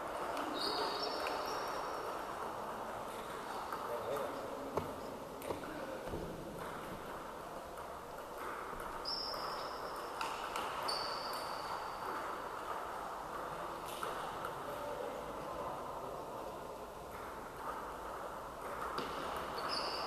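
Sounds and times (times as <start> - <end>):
short high squeaks: 10.8 - 12.0.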